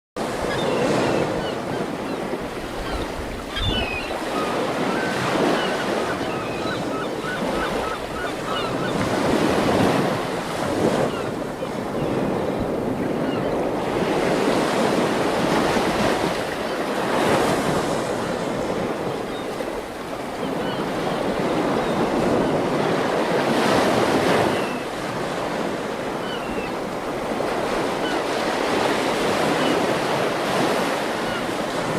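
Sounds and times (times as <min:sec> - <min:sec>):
ocean waves breaking on shore: 0:00.2 - 0:31.9.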